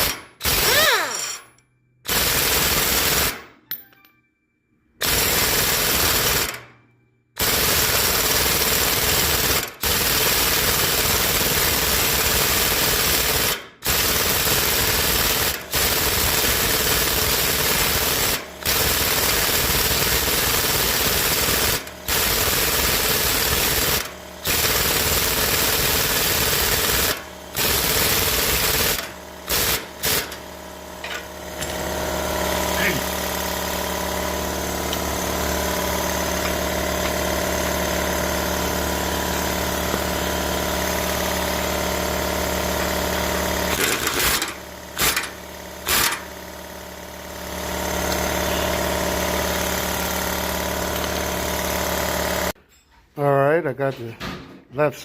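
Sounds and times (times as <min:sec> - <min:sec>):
impact wrench hammering: 0:00.0 - 0:04.1, 0:13.5 - 0:46.4.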